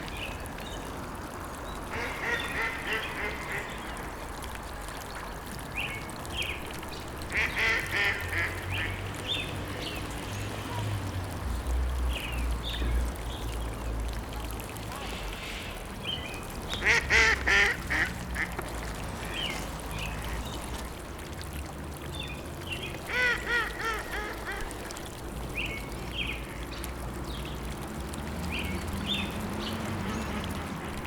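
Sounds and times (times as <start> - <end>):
ducks quacking: 1.9 - 3.8, 7.3 - 8.9, 16.8 - 19.3.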